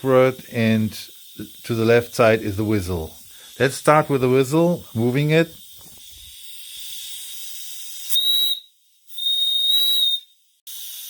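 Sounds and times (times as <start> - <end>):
steady steam hiss: 0.0 - 8.4
steam whistle blasts: 8.1 - 10.4.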